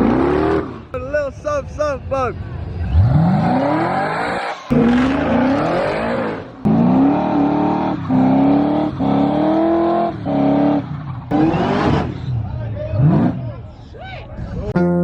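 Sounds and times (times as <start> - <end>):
car engine revving hard: 0.0 - 1.0, 2.8 - 13.5.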